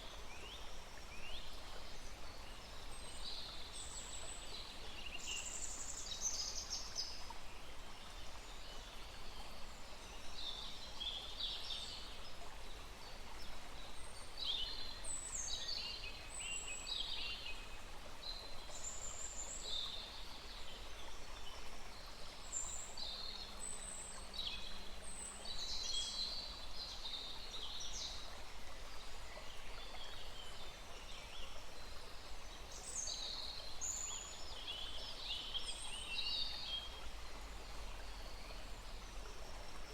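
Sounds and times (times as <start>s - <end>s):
forest stream rushing: 0.0s - 39.9s.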